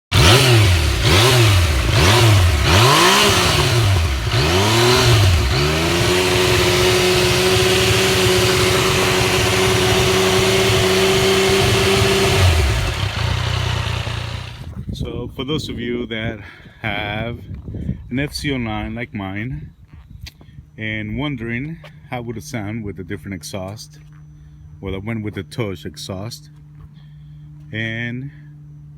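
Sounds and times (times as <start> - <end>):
motorcycle engine revving: 0.0 - 14.8.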